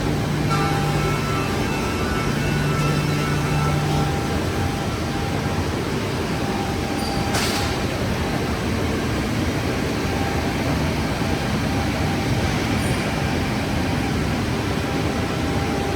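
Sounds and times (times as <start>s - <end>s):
saw machine running: 0.0s - 7.0s.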